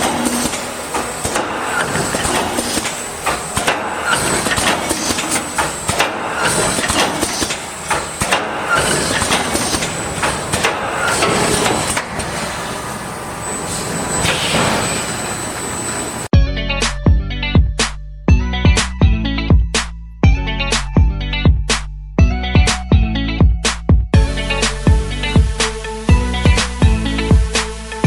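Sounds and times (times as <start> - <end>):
welding machine knocking and clattering: 0.0 - 12.6.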